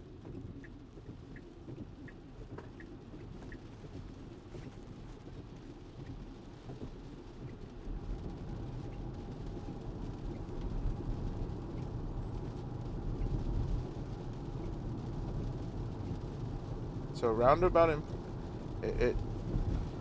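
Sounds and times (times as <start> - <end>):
tyre noise on wet road: 5.2 - 20.0.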